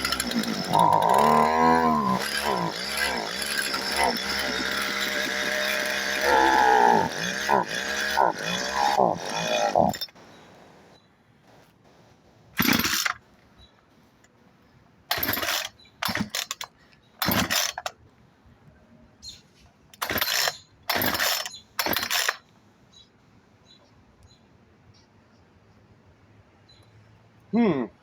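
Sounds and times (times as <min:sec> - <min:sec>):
chainsaw recoil starter pulls: 0:00.0 - 0:10.3, 0:12.6 - 0:13.2, 0:15.1 - 0:18.0, 0:20.0 - 0:22.5.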